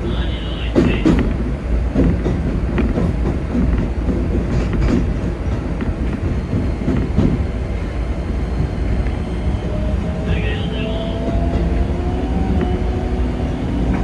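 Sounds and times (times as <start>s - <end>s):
electric train rumble: 0.0s - 14.0s
wheels clicking over rail joints: 0.8s - 7.4s.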